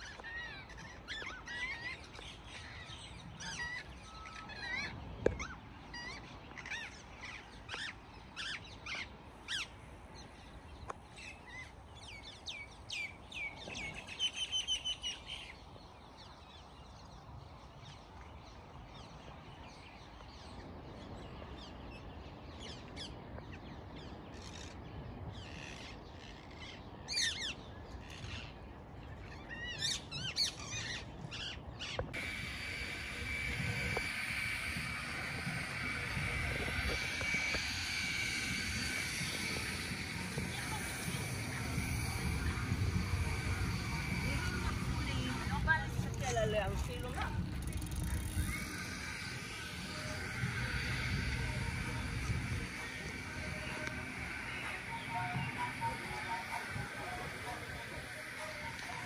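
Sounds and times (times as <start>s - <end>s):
birds chirping: 25.4s - 59.0s
low background rumble: 32.1s - 59.0s.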